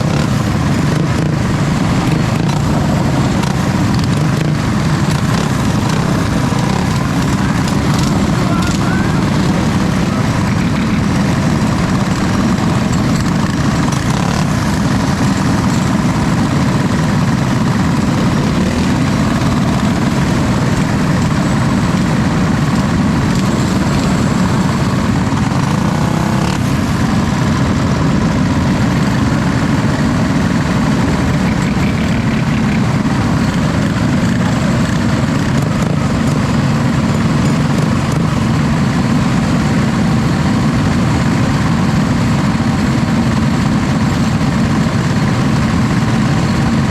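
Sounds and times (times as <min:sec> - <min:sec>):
continuous noisy rush: 0:00.0 - 0:46.9
vehicle engine running: 0:00.0 - 0:46.9.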